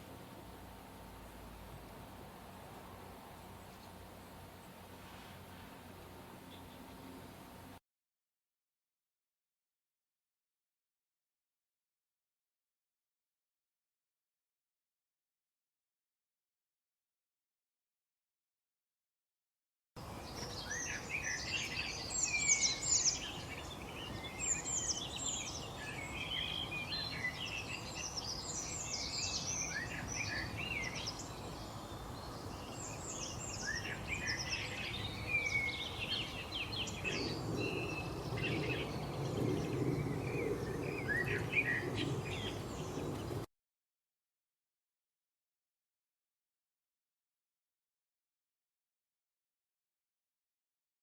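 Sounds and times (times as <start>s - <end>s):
songbirds chirping and twittering: 0.0s - 7.8s, 20.0s - 43.5s.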